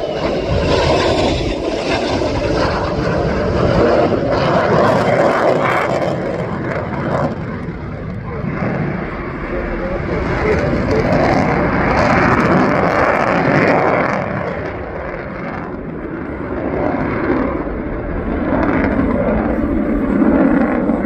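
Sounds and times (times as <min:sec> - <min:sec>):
jet engine rushing noise: 0:00.0 - 0:21.0.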